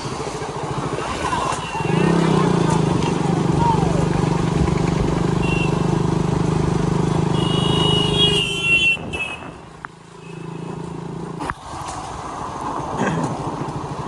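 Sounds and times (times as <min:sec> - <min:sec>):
motorcycle engine running: 0:00.0 - 0:11.7
high horn-like tone: 0:05.4 - 0:05.9, 0:07.3 - 0:09.6.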